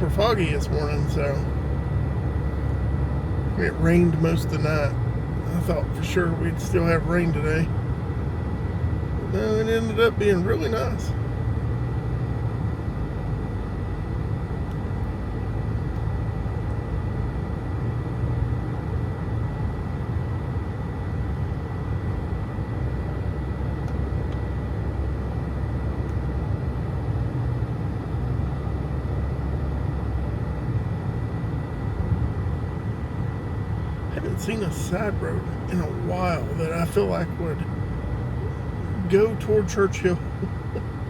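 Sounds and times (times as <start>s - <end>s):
car cabin road rumble: 0.0s - 41.0s
faint high-pitched whine: 32.9s - 40.9s.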